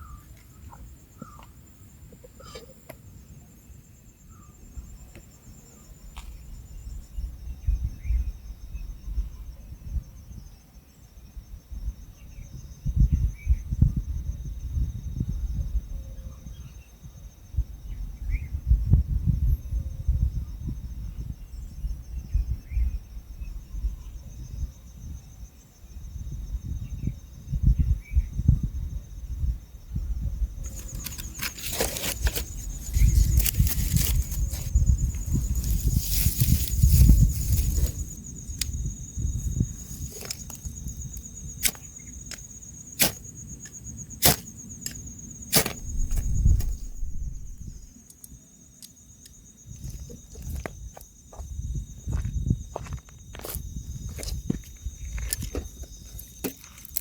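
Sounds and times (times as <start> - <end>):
insects chirring: 0.0 - 57.0
rustling: 30.6 - 38.8, 39.8 - 47.9
insect trilling: 30.6 - 51.0
sharp cracks: 41.6 - 47.7
low thuds: 44.2 - 47.9.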